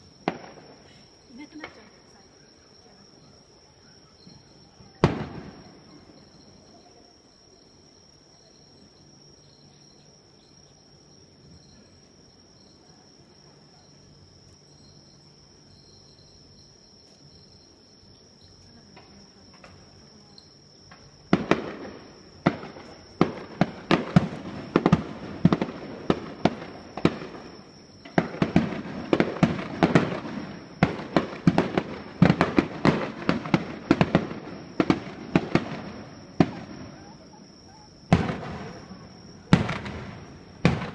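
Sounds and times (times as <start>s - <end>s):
fireworks bursting: 0.0s - 2.0s, 4.8s - 6.6s, 20.9s - 40.9s
faint steady high tone: 1.9s - 5.0s.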